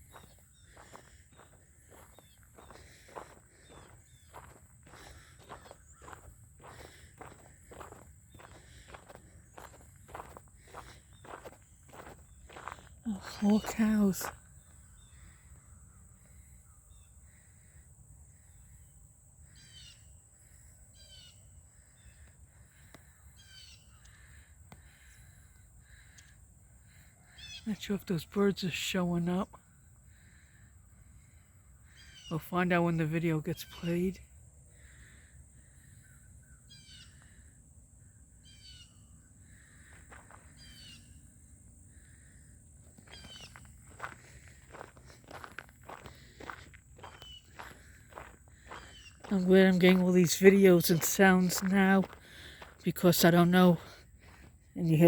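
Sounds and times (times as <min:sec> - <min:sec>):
footsteps crunching on gravel: 0:00.0 - 0:14.4, 0:39.9 - 0:40.6, 0:42.9 - 0:55.0
distant birds calling: 0:00.0 - 0:27.9, 0:29.6 - 0:32.7, 0:34.7 - 0:55.0
songbird singing high phrase: 0:13.0 - 0:15.2, 0:32.0 - 0:34.2, 0:48.8 - 0:52.2, 0:52.8 - 0:53.9.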